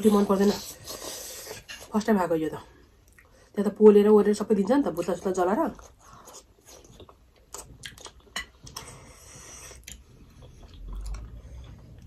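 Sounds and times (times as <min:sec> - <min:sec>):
chewing food: 0:05.7 - 0:12.0.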